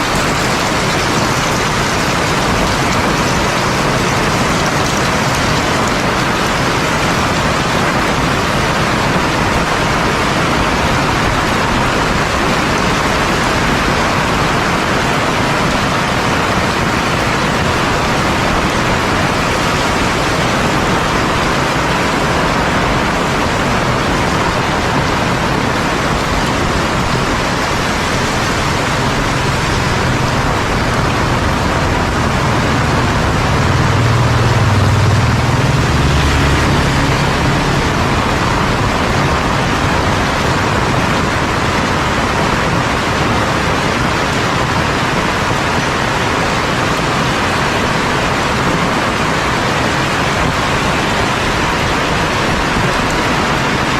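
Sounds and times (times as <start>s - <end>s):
heavy rain falling: 0.0s - 53.9s
low rumble: 26.2s - 42.4s.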